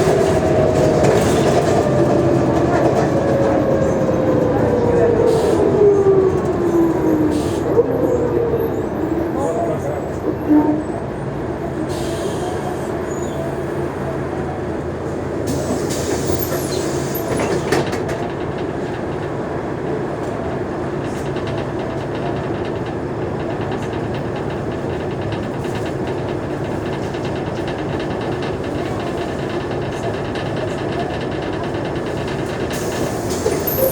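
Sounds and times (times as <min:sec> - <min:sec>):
bus diesel engine drone: 0:00.0 - 0:33.9
body rattles and clicks: 0:20.1 - 0:33.9.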